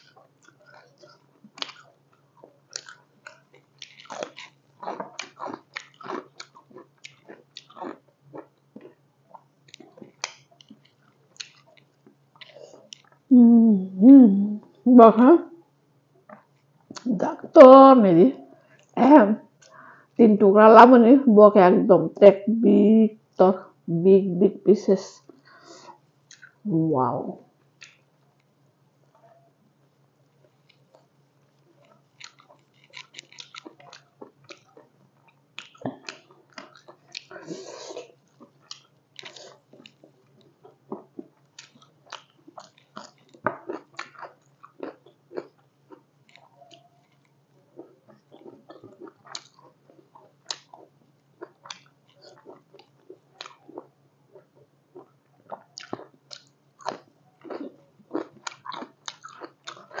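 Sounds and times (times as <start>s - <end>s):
person chewing food: 0.0s - 13.3s, 16.2s - 17.1s, 25.2s - 26.6s, 30.3s - 60.0s.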